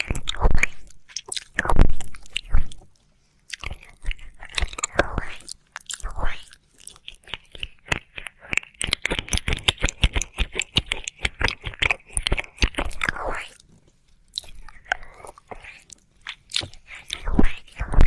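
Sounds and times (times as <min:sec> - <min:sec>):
wet mouth clicks and smacks: 0:03.5 - 0:13.6.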